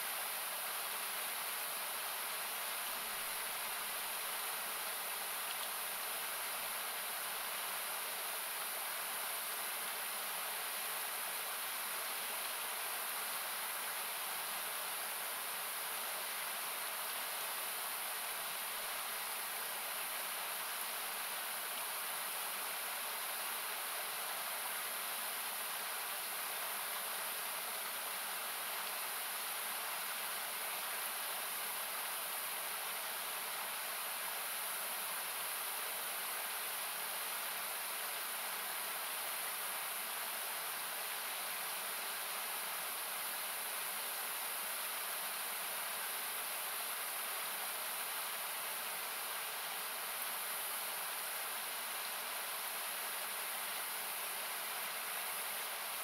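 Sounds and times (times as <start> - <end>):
river rushing: 0.0 - 56.0.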